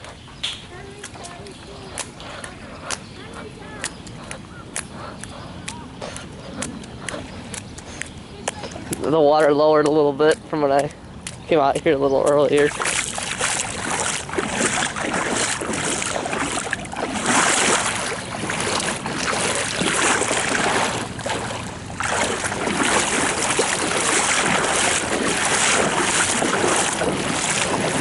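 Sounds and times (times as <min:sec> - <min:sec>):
floodwater rushing: 0:07.2 - 0:28.0
wind on microphone: 0:12.6 - 0:28.0.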